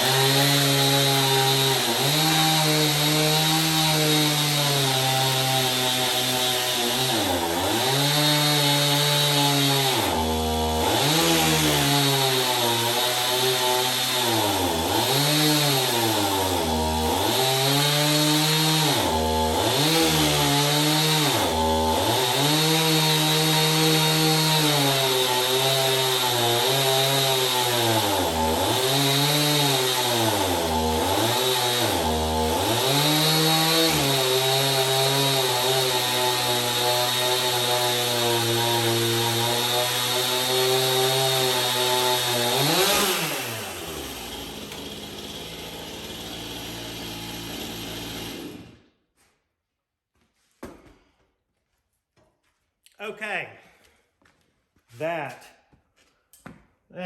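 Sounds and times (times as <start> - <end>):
power tool motor whining: 41.0 - 48.7.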